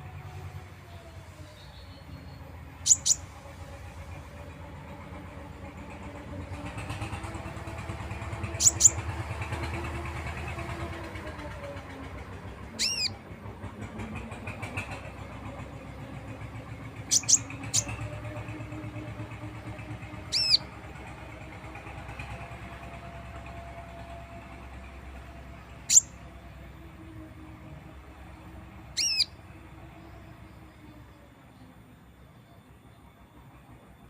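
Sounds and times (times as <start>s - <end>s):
low engine-like rumble: 0.0s - 34.0s
songbird calls: 0.9s - 3.5s, 8.2s - 9.5s, 12.7s - 13.2s, 16.9s - 18.6s, 19.8s - 20.8s, 25.8s - 26.3s, 28.8s - 33.1s.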